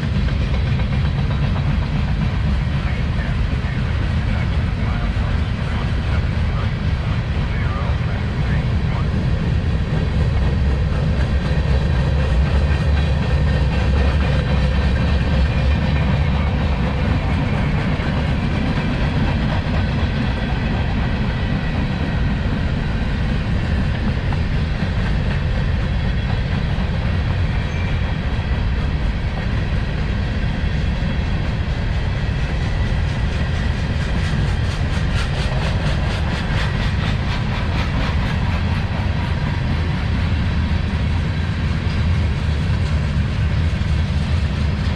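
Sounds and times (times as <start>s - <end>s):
wheels clacking over rail joints: 0.0s - 3.0s
train wheels rumbling: 0.0s - 44.9s.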